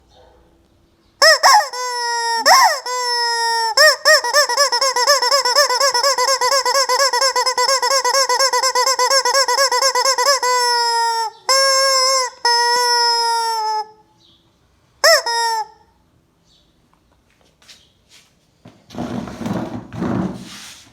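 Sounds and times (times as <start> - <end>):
rubber chicken toy squawking: 1.2 - 14.0, 15.0 - 15.8.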